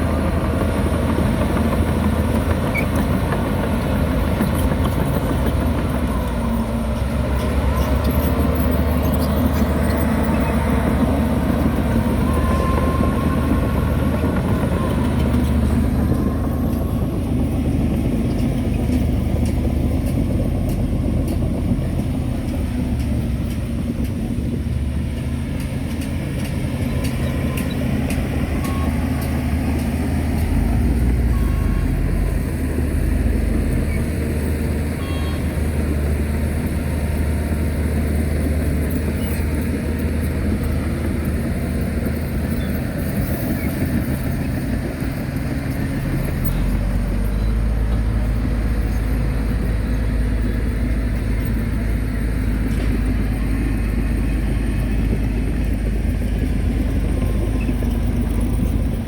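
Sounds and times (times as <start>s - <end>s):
heavy diesel machinery drone: 0.0s - 59.0s.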